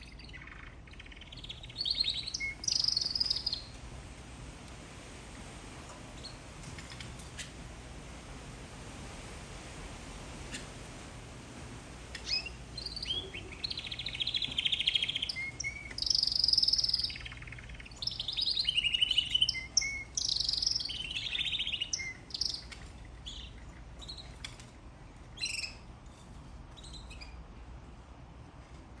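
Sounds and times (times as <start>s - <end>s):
canary singing trills and chirps: 0.0s - 3.8s, 12.1s - 24.7s, 25.3s - 26.1s, 26.7s - 27.5s.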